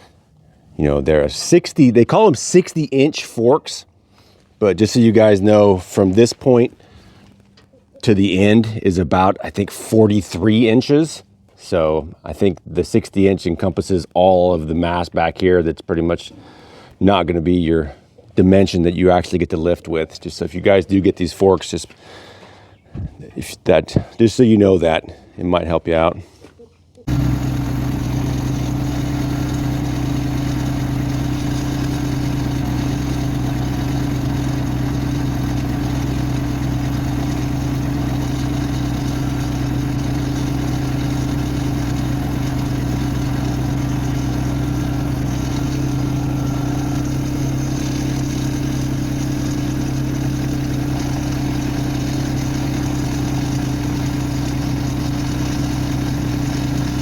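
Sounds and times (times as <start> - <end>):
tractor engine running: 27.1 - 57.0.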